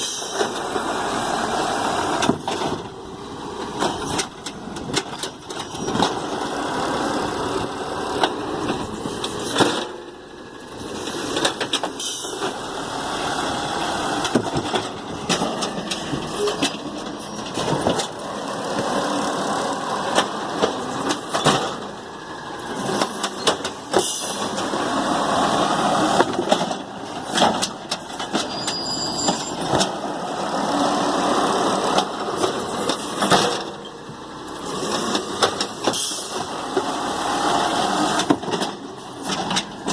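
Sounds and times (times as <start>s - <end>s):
garbage truck engine and hydraulics: 0.0s - 39.9s
knocks and clatters: 14.2s - 19.0s.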